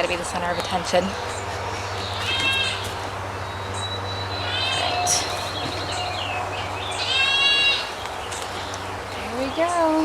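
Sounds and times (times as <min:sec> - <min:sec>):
goat kid bleating: 0:02.2 - 0:02.8, 0:04.4 - 0:05.4, 0:07.0 - 0:07.9.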